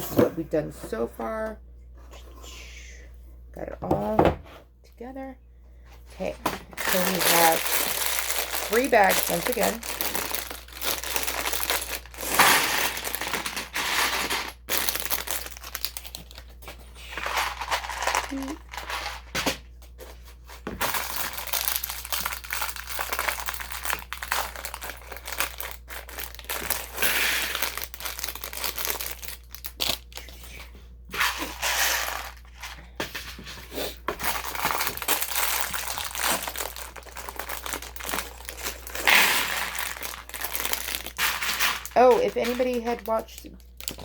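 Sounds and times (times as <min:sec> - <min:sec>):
plastic bags crinkling: 0:06.2 - 0:19.3, 0:20.7 - 0:30.6, 0:31.2 - 0:32.8, 0:33.9 - 0:44.0
plastic bricks clattering: 0:06.8 - 0:16.0.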